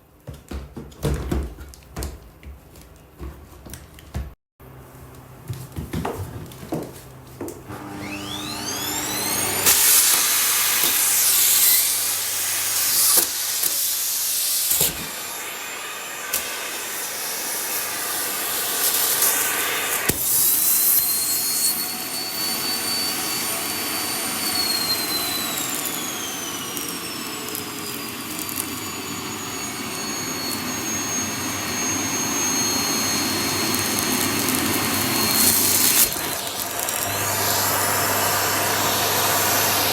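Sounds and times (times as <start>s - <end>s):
vacuum cleaner motor whine: 7.7s - 39.9s.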